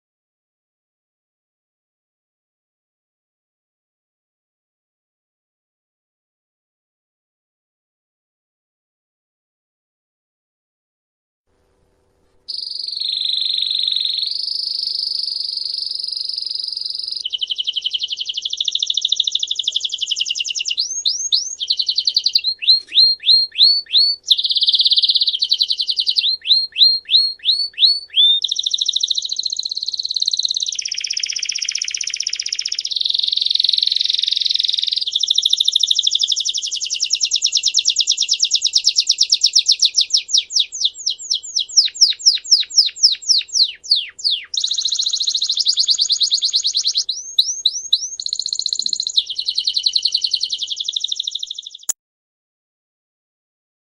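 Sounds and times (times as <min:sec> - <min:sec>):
songbird singing trills: 0:12.5 - 0:52.0.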